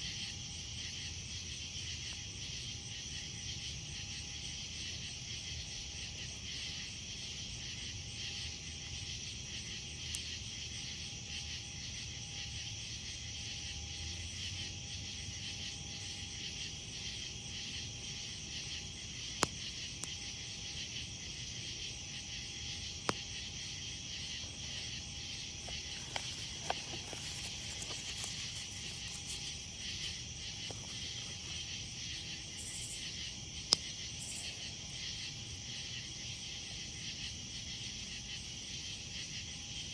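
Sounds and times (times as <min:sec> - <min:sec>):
crickets chirping: 0:00.0 - 0:39.9
campfire crackling: 0:17.6 - 0:34.9
burning wood popping: 0:22.9 - 0:32.6.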